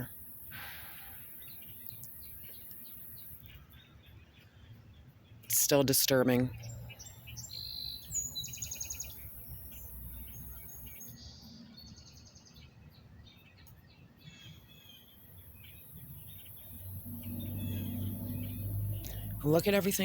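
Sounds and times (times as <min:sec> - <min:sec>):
songbirds chirping: 0:00.0 - 0:20.0
bird trill: 0:06.4 - 0:20.0.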